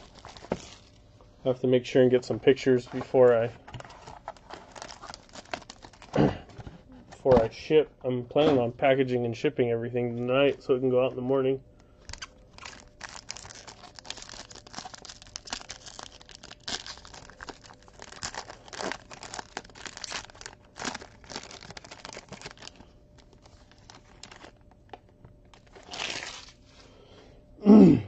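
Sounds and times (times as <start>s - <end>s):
plastic crinkling and rustling: 0.0s - 1.0s, 2.4s - 7.2s, 12.0s - 26.6s.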